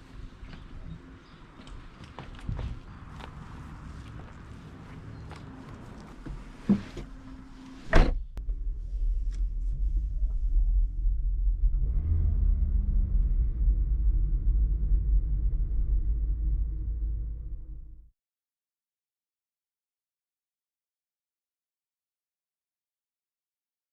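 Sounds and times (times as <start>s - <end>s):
steady low rumble: 0.0s - 18.1s.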